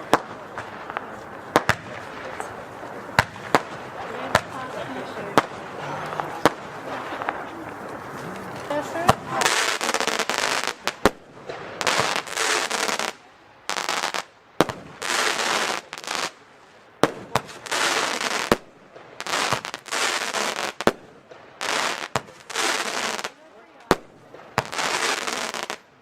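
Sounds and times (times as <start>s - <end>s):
sharp firework bangs: 0.0s - 16.4s, 17.0s - 25.8s
firework crackling hiss: 0.0s - 25.9s.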